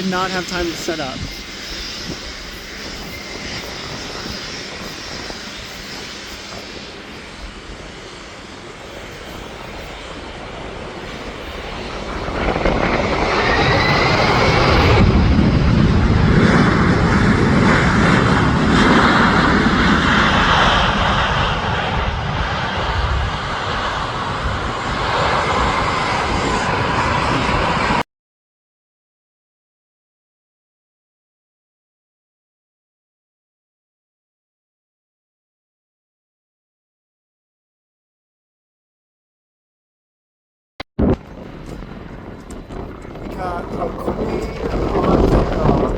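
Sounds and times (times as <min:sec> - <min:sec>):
rising jet whine: 0:00.0 - 0:28.0, 0:41.0 - 0:45.9
jet engines passing close: 0:00.0 - 0:28.1, 0:41.0 - 0:45.9.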